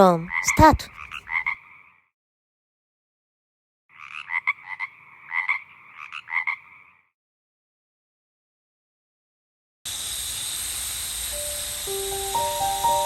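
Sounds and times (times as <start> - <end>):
frog croaking: 0.3 - 2.1, 3.9 - 7.1.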